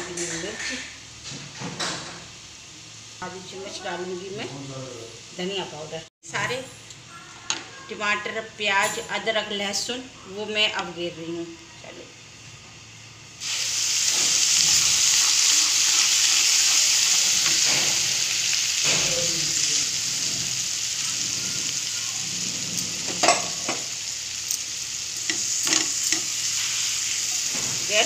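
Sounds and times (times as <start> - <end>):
paste sizzling in hot oil: 12.4 - 28.0.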